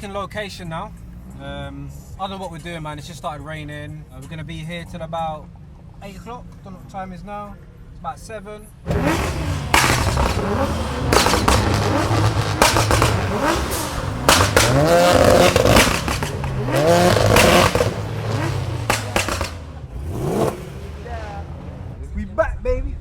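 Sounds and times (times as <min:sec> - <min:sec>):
car engines revving: 0:00.0 - 0:07.0, 0:08.7 - 0:22.3
sharp cracks: 0:08.9 - 0:21.9.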